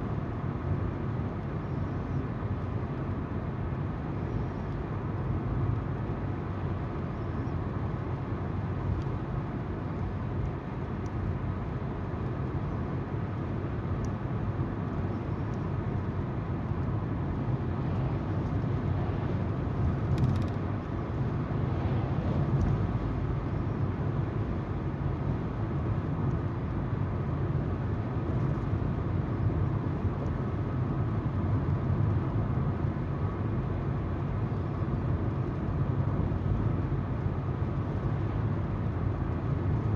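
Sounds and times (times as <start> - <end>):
tyres on road: 2.6 - 39.9.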